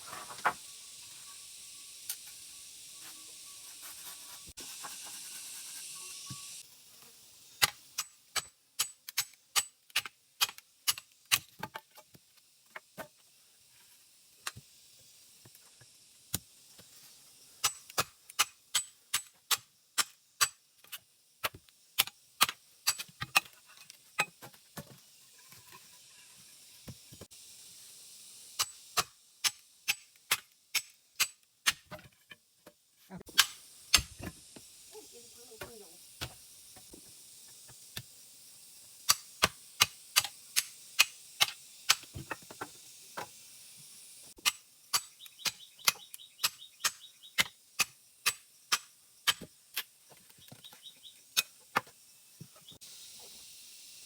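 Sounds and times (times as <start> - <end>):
steady hiss: 0.0 - 31.8, 32.6 - 54.0.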